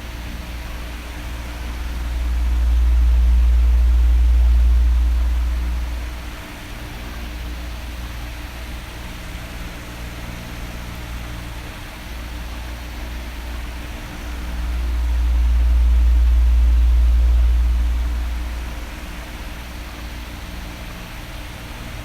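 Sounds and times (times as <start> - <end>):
electric fan running: 0.0 - 22.0
air buffeting microphone: 1.3 - 7.0, 13.8 - 19.4.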